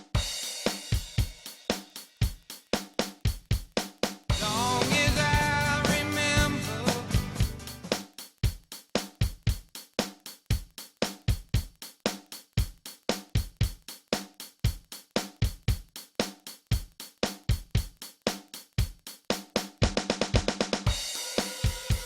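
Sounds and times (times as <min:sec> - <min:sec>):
rock drum kit beat: 0:00.0 - 0:22.0
full band playing: 0:04.3 - 0:08.0.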